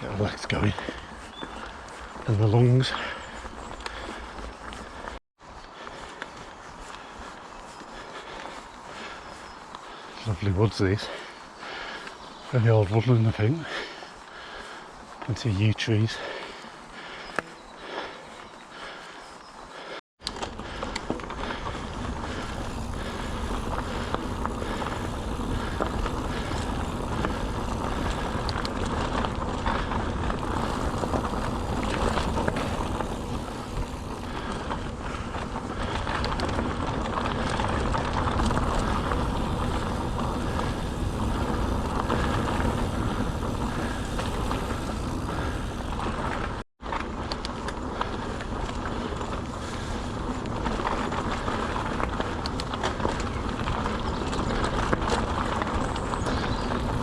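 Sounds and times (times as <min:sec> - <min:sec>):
bike tyre rumble on dirt: 0:00.0 - 0:57.0
bike rattles and knocks: 0:20.2 - 0:57.0.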